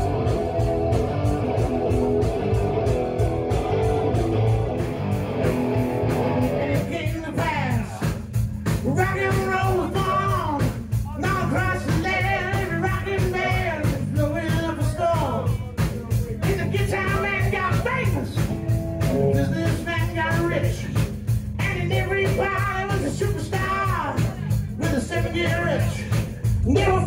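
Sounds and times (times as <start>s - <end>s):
guitar lead with bending notes: 0.0s - 7.8s, 18.0s - 22.8s
rock music with electric guitar: 0.0s - 27.0s.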